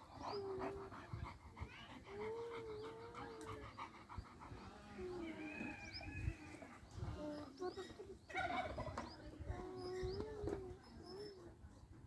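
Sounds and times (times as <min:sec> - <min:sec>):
dog panting rapidly: 0:00.0 - 0:05.4.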